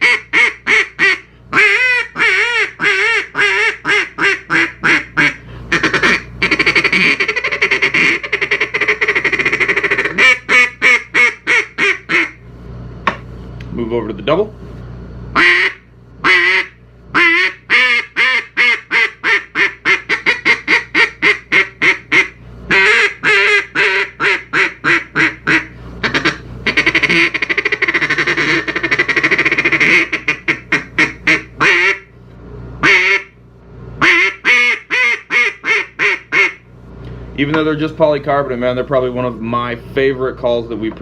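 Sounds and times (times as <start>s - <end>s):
duck call quacking: 0.0s - 12.4s, 15.4s - 32.1s, 32.8s - 33.4s, 34.0s - 36.6s.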